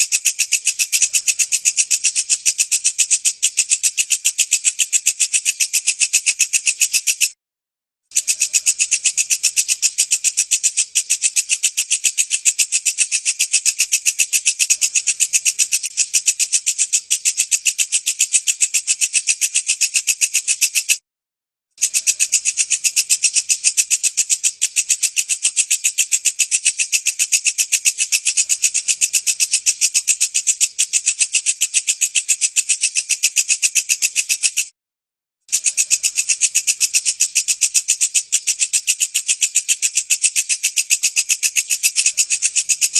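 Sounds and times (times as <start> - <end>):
katydid rattling song: 0.0 - 7.4, 8.1 - 21.0, 21.8 - 34.7, 35.5 - 42.9.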